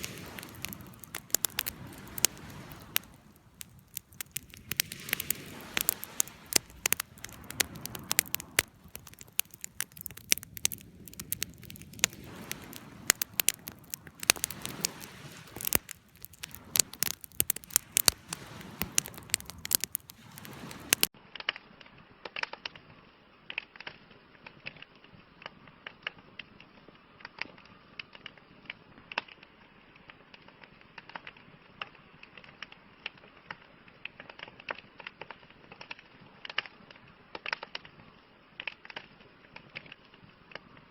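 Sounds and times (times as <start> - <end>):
low rush of flame: 0.0 - 21.1
campfire crackling and popping: 0.0 - 22.8, 23.4 - 40.9.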